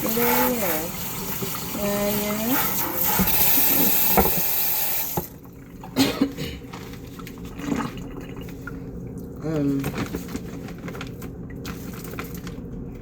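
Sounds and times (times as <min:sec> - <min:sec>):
running water: 0:00.0 - 0:06.0.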